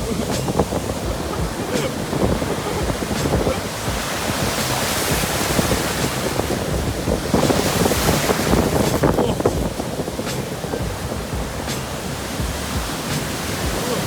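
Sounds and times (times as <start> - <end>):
waves breaking: 0.0 - 14.0
wind buffeting microphone: 0.0 - 14.0.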